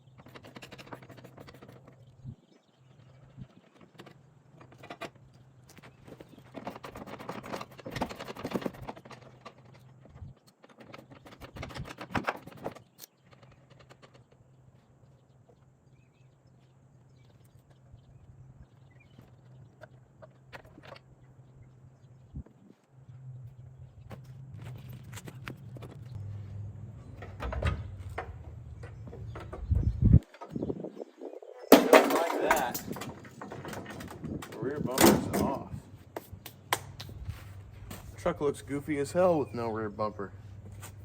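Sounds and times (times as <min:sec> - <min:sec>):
steady low hum: 0:14.5 - 0:30.8
hand tools clanking on metal: 0:31.7 - 0:35.6.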